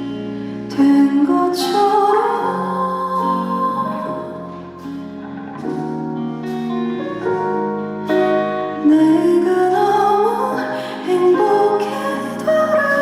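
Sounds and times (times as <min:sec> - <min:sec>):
gentle instrumental accompaniment: 0:00.0 - 0:13.0
woman singing: 0:00.1 - 0:05.1, 0:08.6 - 0:13.0.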